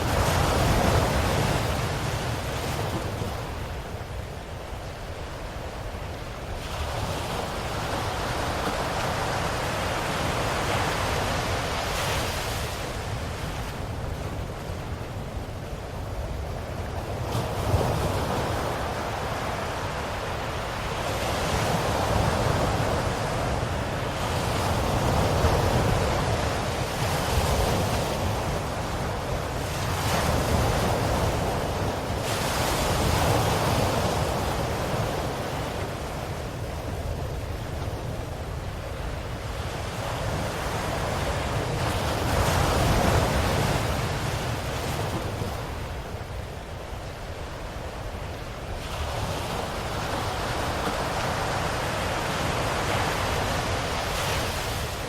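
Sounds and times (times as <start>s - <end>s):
ocean waves washing ashore: 0.0s - 55.0s.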